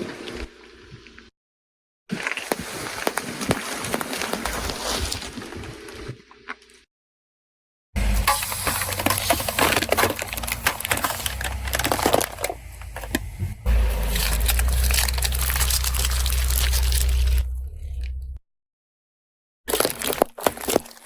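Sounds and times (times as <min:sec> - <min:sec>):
tyre crushing brittle objects: 0:08.0 - 0:17.6, 0:19.7 - 0:21.0
low rumble with fine crackling: 0:08.0 - 0:18.4.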